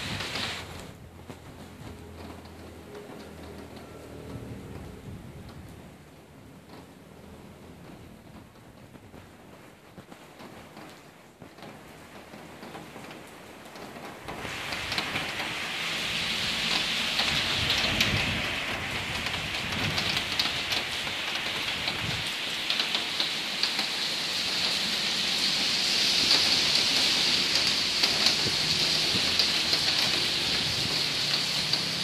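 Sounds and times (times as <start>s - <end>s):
rain pouring on road: 0.0s - 32.0s.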